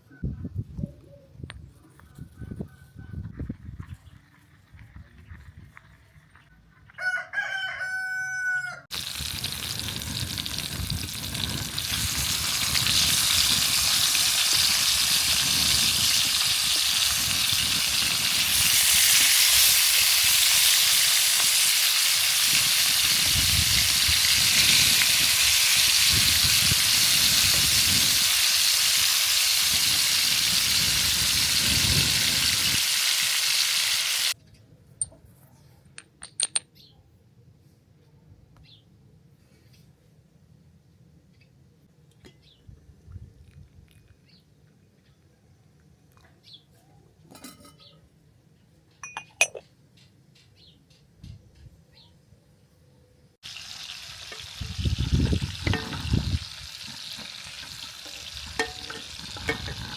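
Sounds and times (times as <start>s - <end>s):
rooster crowing: 7.0s - 8.9s
food sizzling in hot oil: 8.9s - 34.4s, 53.4s - 59.9s.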